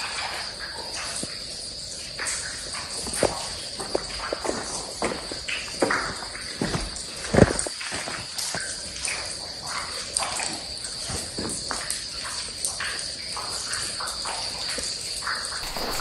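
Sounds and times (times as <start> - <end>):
insects chirring: 13.7 - 16.0
footsteps and scuffs: 15.6 - 16.0.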